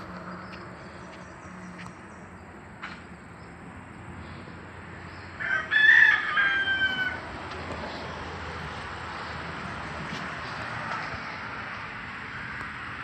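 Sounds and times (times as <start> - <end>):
rooster crowing: 5.4 - 7.3.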